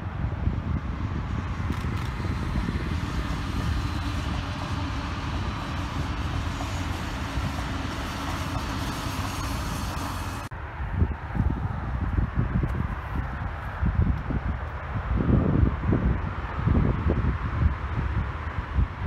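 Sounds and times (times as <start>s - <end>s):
train passing at speed: 0.0s - 13.6s
wind buffeting microphone: 0.0s - 19.0s.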